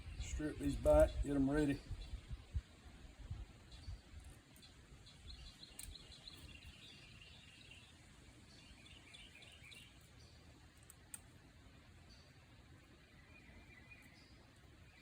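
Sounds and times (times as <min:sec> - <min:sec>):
faint birds chirping: 0:00.0 - 0:15.0
faint clicks: 0:05.7 - 0:06.0, 0:10.7 - 0:11.3.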